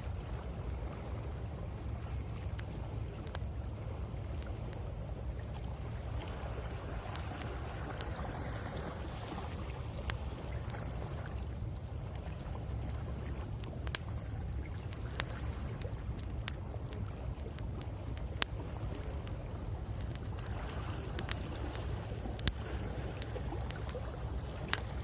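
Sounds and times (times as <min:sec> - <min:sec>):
waves washing on shore: 0:04.9 - 0:25.0
wood fire crackling and popping: 0:07.0 - 0:08.2, 0:13.3 - 0:25.0.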